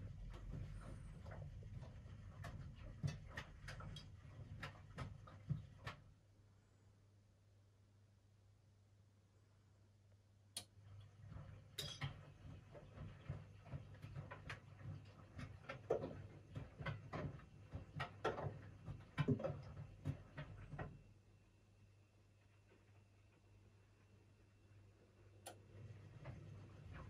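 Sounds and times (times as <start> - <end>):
laundry tumbling with knocks: 0.0 - 6.2, 10.8 - 21.2, 25.7 - 27.0
washing machine motor rumble: 0.0 - 6.3, 10.6 - 21.3, 22.4 - 27.0.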